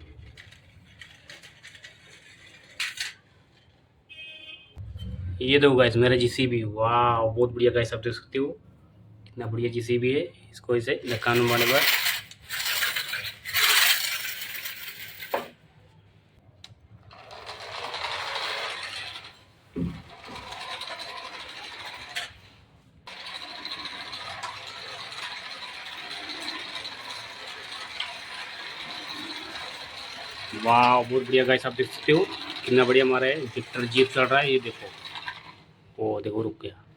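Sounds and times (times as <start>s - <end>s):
plastic toy vehicles rattling: 0.0s - 3.8s, 11.1s - 15.5s, 17.0s - 35.7s
toy electric motor whining: 23.1s - 35.6s.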